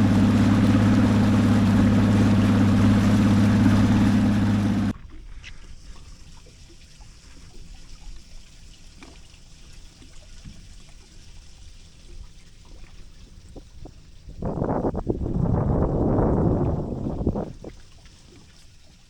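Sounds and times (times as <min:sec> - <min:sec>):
water lapping against boat hull: 0:00.0 - 0:19.0.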